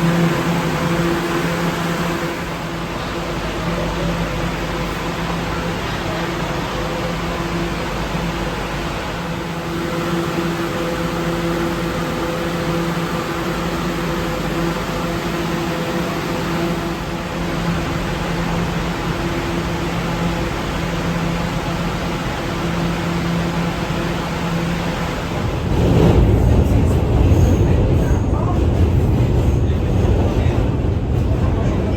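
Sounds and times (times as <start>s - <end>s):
subway train hum and hiss: 0.0s - 31.9s.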